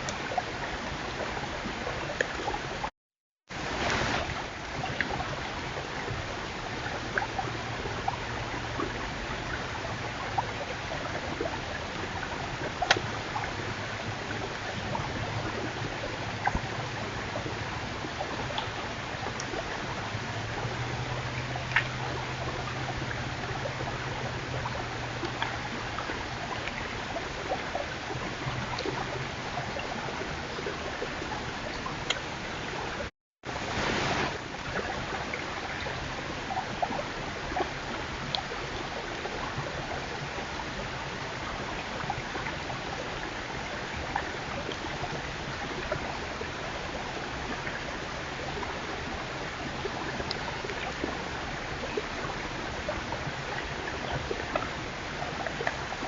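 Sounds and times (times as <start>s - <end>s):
faint ticks: 12.8s - 13.1s, 21.3s - 22.5s, 25.2s - 26.8s, 31.7s - 32.3s
steady rushing hiss: 33.5s - 34.4s.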